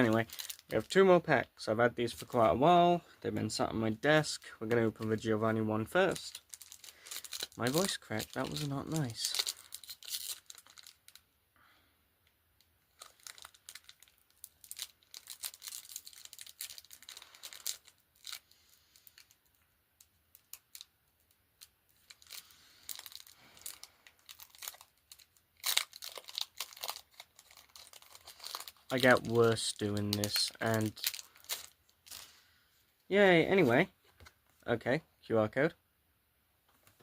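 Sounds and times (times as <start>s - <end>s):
foil wrapper tearing and crinkling: 0.0s - 0.9s, 6.0s - 11.2s, 12.9s - 19.4s, 21.6s - 32.4s.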